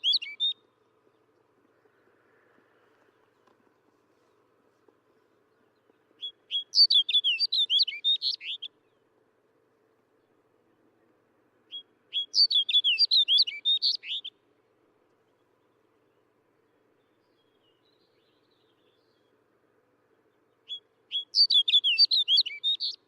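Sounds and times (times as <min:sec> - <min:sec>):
bird singing warbling phrases: 0:00.0 - 0:00.7, 0:06.2 - 0:09.0, 0:11.7 - 0:14.4, 0:20.5 - 0:23.0.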